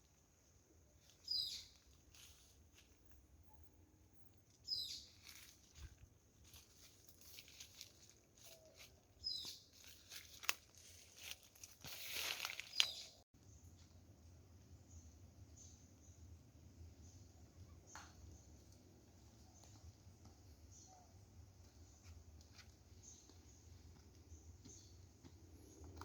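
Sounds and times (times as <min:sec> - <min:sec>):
bird chirping high: 0:01.2 - 0:01.8, 0:04.6 - 0:05.2, 0:09.2 - 0:09.7
rustling and crackling: 0:05.1 - 0:13.2.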